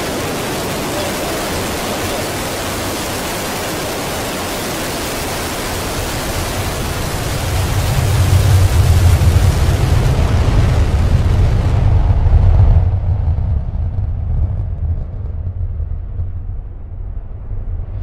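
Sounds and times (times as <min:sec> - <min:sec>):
rocket engine roar: 0:00.0 - 0:18.0
deep low rumble: 0:06.3 - 0:18.0.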